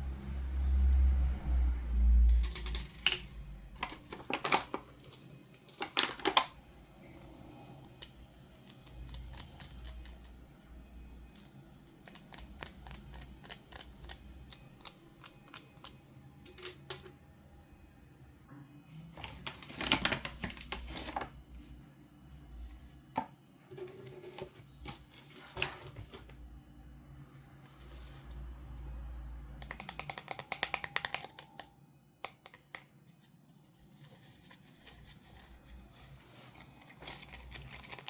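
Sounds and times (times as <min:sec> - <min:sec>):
packaging clicking: 0:03.8 - 0:06.6, 0:29.6 - 0:31.7.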